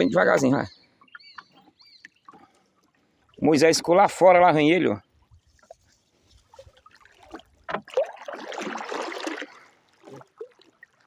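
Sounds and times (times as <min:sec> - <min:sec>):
water splashing and trickling: 0:00.0 - 0:11.0
light knocks on wooden hull: 0:07.6 - 0:08.0.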